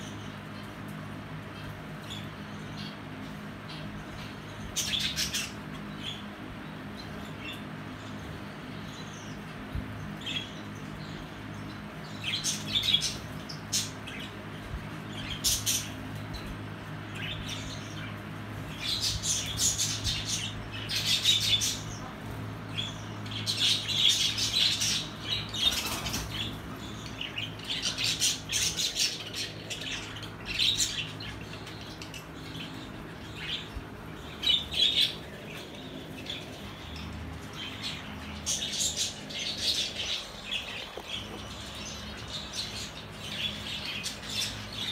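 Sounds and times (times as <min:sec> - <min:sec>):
lovebirds chirping and squawking: 0:00.0 - 0:44.9
steady low hum: 0:00.0 - 0:44.9.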